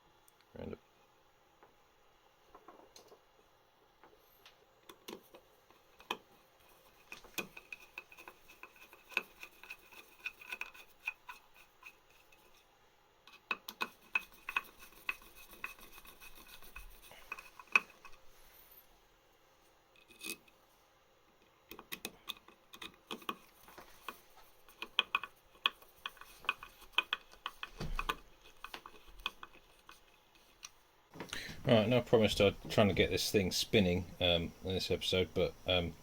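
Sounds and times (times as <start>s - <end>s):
tools clicking and scraping: 4.9s - 12.6s, 13.3s - 18.2s, 20.0s - 20.6s, 21.7s - 30.8s.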